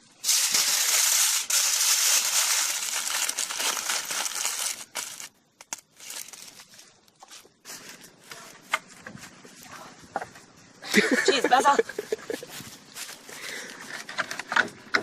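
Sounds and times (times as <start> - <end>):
aluminium foil crinkling: 0.2 - 8.6.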